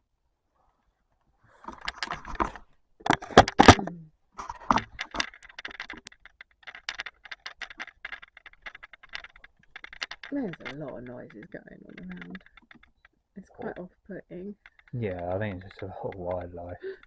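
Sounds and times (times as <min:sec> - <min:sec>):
rustling and crackling: 0:00.6 - 0:17.0
small irregular clicks: 0:00.8 - 0:17.0
sharp snaps: 0:14.6 - 0:17.0.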